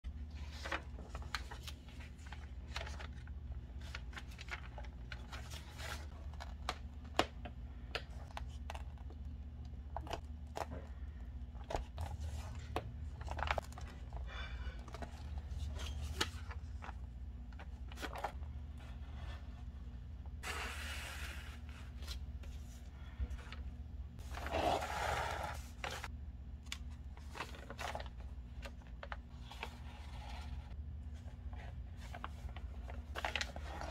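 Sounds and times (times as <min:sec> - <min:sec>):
paper rustling: 0:00.2 - 0:09.1, 0:26.7 - 0:33.9.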